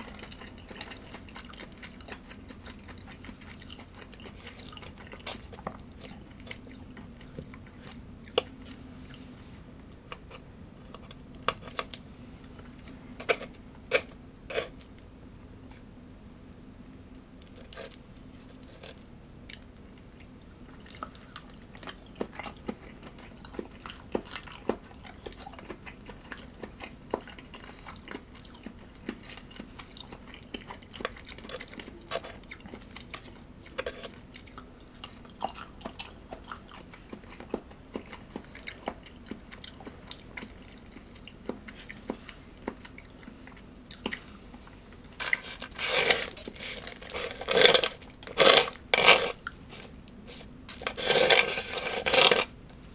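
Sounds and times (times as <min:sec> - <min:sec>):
chewing and crunching food: 0:00.0 - 0:15.9, 0:17.4 - 0:52.9
loud crunching bites: 0:45.2 - 0:49.9, 0:50.7 - 0:52.5.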